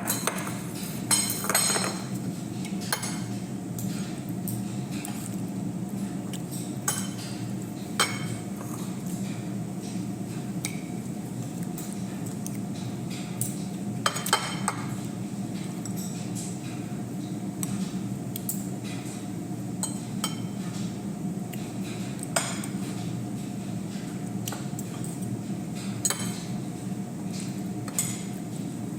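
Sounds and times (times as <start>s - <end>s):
utensils clinking on dishes: 0.0s - 5.4s, 6.5s - 7.4s, 8.0s - 10.0s, 13.1s - 15.0s, 19.8s - 21.0s, 25.8s - 26.5s.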